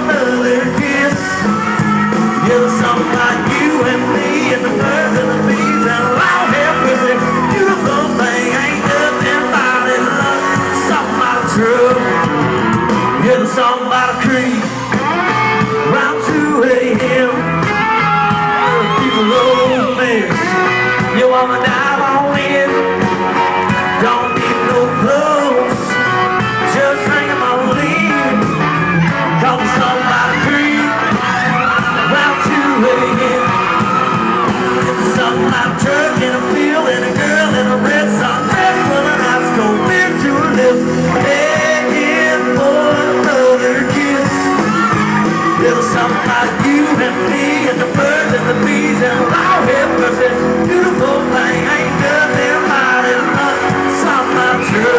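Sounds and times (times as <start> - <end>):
drums: 0.0 - 54.9
electric guitars: 0.0 - 54.9
person singing: 0.0 - 54.9.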